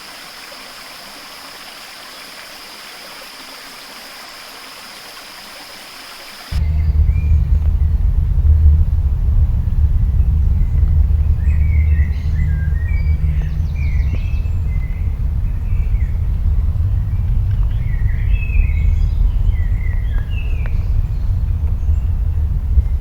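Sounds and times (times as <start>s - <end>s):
deep steady rumble: 6.5s - 23.0s
songbirds chirping: 9.7s - 23.0s.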